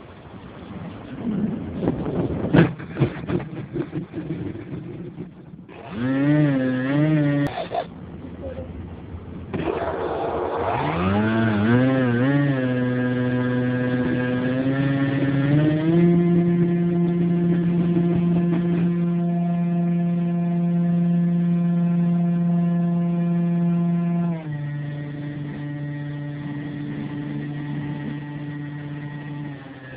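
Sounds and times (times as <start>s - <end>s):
model airplane motor revving: 5.7s - 7.6s, 9.5s - 29.9s.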